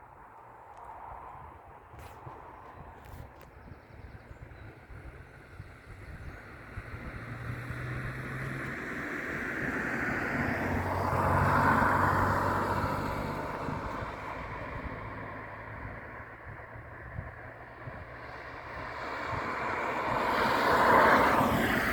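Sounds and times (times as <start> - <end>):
jet airliner engines passing: 4.7 - 21.9.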